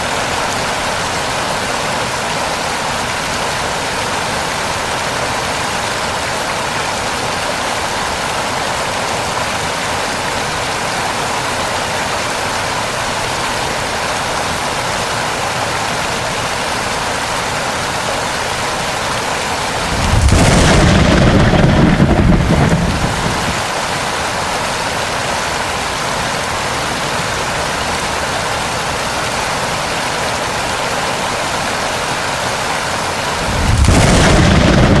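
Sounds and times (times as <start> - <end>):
steady rain: 0.0 - 35.0
loud thunder rolls: 19.7 - 23.7, 33.4 - 35.0.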